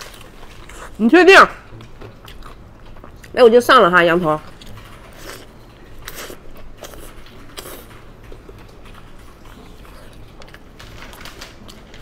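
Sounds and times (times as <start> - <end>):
person chewing meat: 0.0 - 1.0, 1.7 - 3.4, 4.5 - 10.8.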